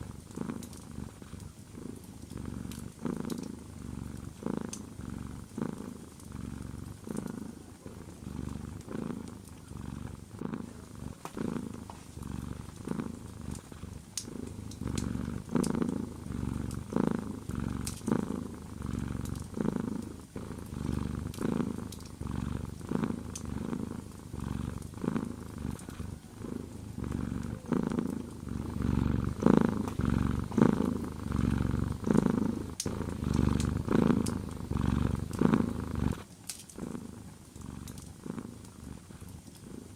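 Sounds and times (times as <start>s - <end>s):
cat purring: 0.0s - 39.9s
wood fire crackling: 10.9s - 36.8s.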